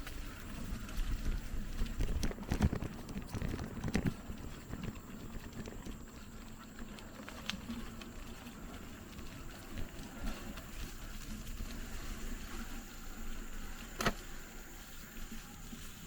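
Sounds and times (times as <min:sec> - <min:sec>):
bicycle tyres crunching on dirt: 0:00.0 - 0:16.0
bike rattling: 0:00.0 - 0:16.0
small clicks and knocks: 0:01.9 - 0:06.2.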